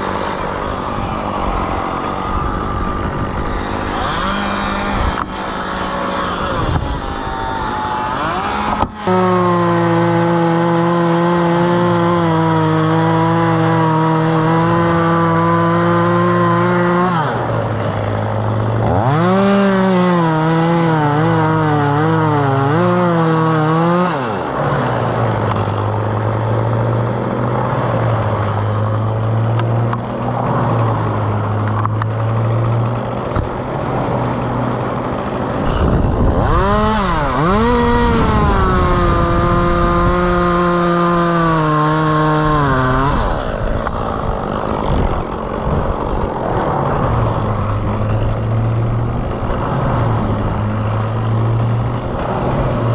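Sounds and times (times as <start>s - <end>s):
chainsaw revving: 0.0s - 52.9s.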